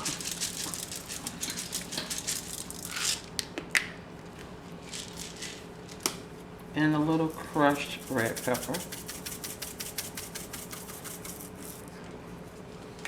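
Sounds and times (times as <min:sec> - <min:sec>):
peppercorns pattering into a pot: 0:00.0 - 0:03.5, 0:07.3 - 0:11.9.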